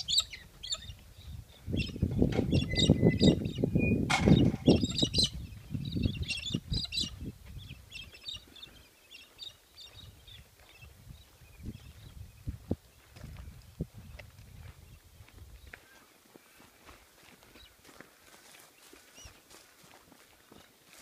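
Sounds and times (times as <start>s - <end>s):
small birds chirping: 0.0s - 19.6s
sharp knock: 4.1s - 4.7s.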